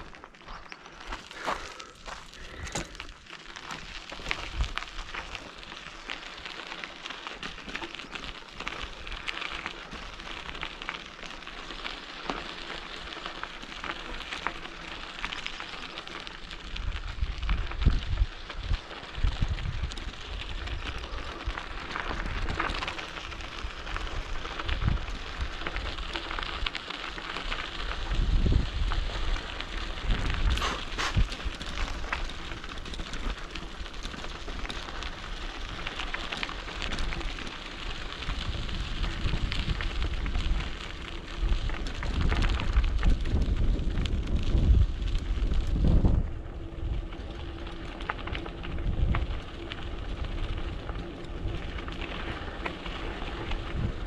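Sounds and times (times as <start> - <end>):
bike rattling: 0.0 - 54.0
tyres crunching on gravel: 0.0 - 54.0
wind on microphone: 16.8 - 21.6, 28.0 - 31.6, 41.4 - 47.6, 53.4 - 54.0.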